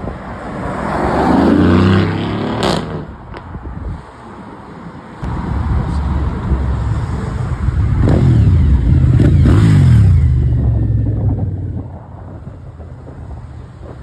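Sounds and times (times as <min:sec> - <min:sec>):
car engine revving: 0:05.2 - 0:11.5.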